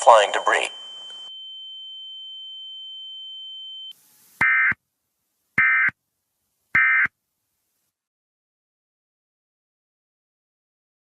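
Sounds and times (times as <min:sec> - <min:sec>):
steady high-pitched tone: 0:00.0 - 0:03.9.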